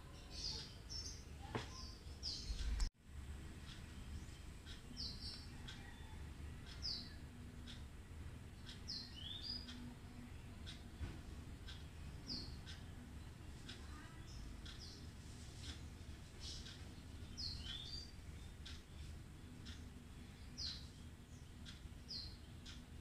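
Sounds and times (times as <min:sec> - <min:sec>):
small bird chirping: 0:00.0 - 0:02.9, 0:03.6 - 0:07.9, 0:08.5 - 0:11.0, 0:11.6 - 0:23.0
faint clicks: 0:13.6 - 0:19.9.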